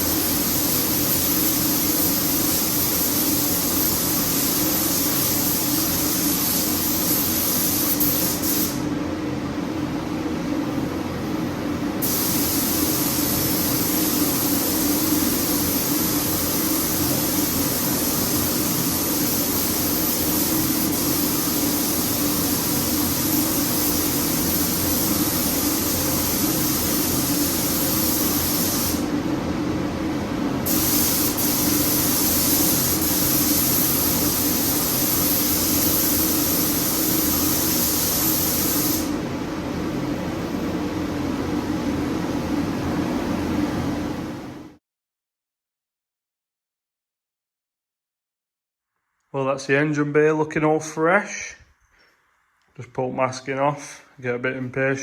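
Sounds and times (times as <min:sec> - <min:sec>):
spray gun hissing: 0:00.0 - 0:08.8, 0:12.0 - 0:29.1, 0:30.6 - 0:39.2.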